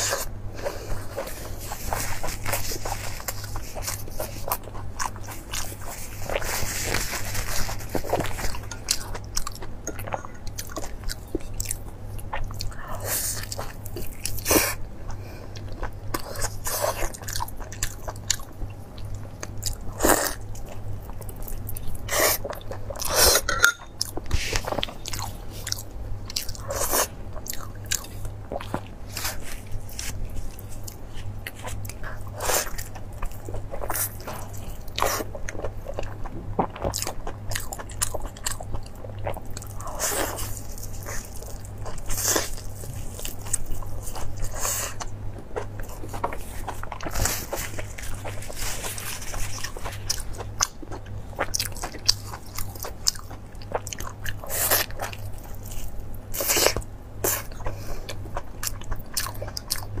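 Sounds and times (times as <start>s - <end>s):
crunching crusty fried buns: 0.0s - 60.0s.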